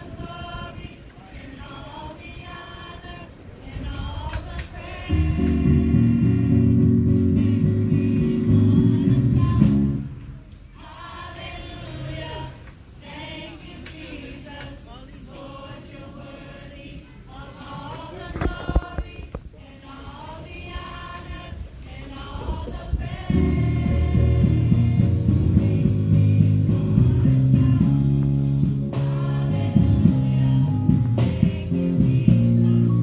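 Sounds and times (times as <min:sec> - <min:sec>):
choir singing gospel: 0:00.0 - 0:33.0
band with bass and guitar: 0:05.0 - 0:10.4, 0:23.2 - 0:33.0.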